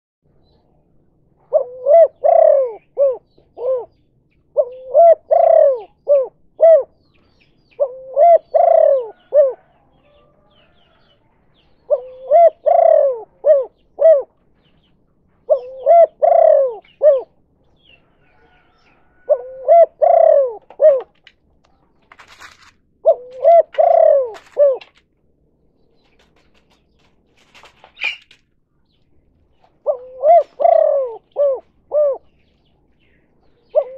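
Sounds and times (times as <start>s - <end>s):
dove cooing: 1.4s - 7.0s, 7.7s - 21.3s, 22.1s - 25.0s, 29.5s - 33.9s.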